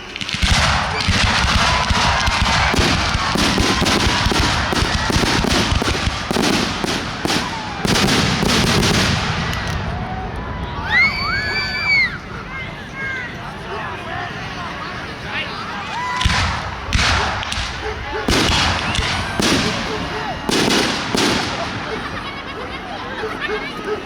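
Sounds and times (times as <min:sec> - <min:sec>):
fireworks crackling and popping: 0:00.0 - 0:10.0, 0:15.8 - 0:22.2.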